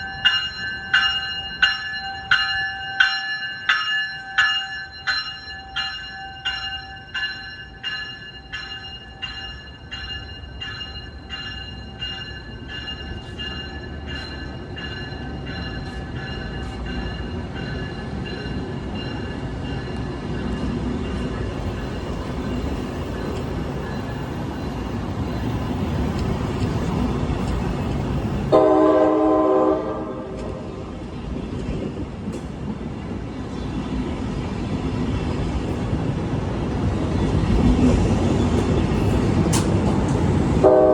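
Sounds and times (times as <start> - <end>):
bell striking: 0.0 - 20.5
train rumble: 0.0 - 40.9
locomotive horn blast: 28.5 - 30.6, 40.6 - 40.9.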